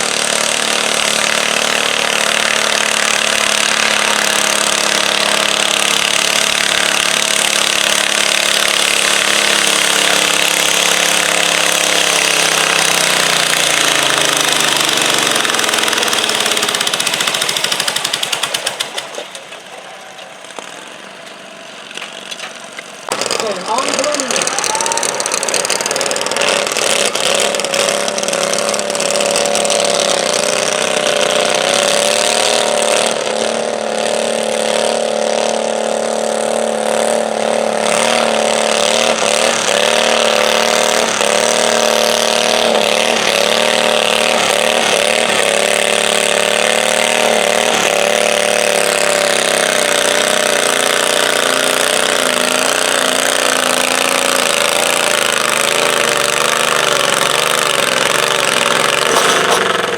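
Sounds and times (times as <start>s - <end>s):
small tractor engine under load: 0.0s - 59.9s.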